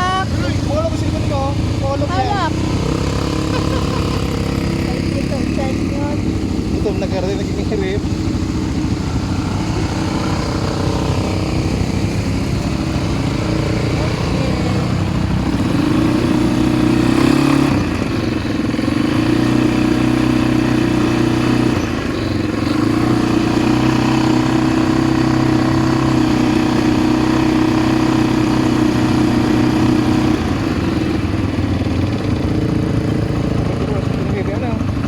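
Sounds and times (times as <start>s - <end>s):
atv engine running: 0.0s - 35.0s.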